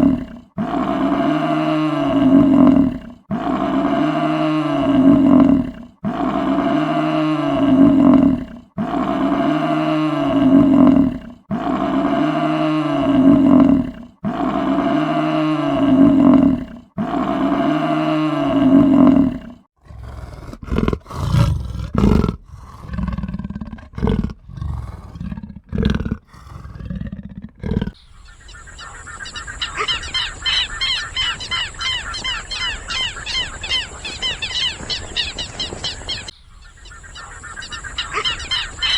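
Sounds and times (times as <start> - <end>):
large animal roaring: 0.0 - 28.0
fast high repeated animal calls: 27.9 - 38.9.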